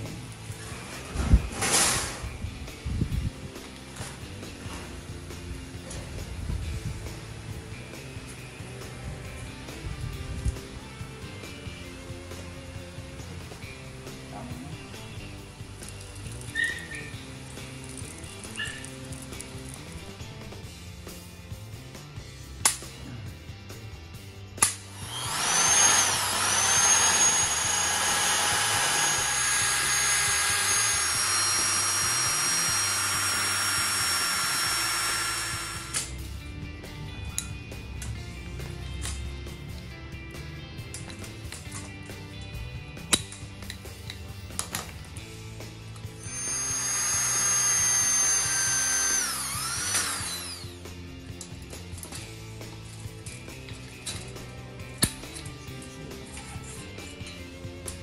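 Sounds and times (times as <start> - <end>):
background music: 0.0 - 58.0
electric drill boring into steel: 14.9 - 20.0, 24.6 - 36.2, 46.0 - 51.0.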